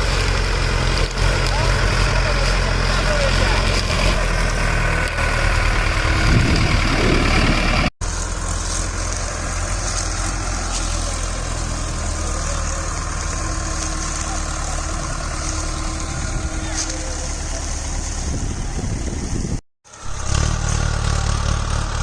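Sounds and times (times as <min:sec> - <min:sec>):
diesel tractor engine running: 0:00.0 - 0:22.0.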